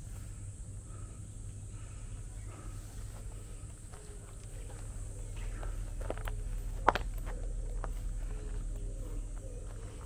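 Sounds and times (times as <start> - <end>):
low steady rumble: 0.0 - 10.0
footsteps on dirt trail: 2.4 - 10.0.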